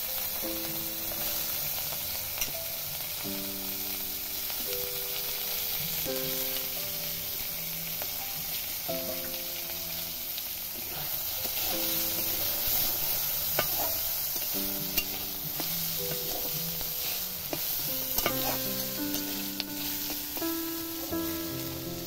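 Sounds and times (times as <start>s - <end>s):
potatoes sizzling in oil: 0.0s - 22.0s
soft background music: 0.0s - 22.0s
metal spatula scraping pan: 12.8s - 20.2s.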